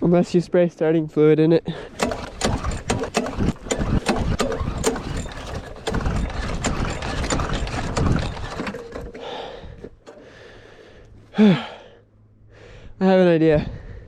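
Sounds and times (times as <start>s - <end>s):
lawn mower engine cranking: 1.8s - 10.3s.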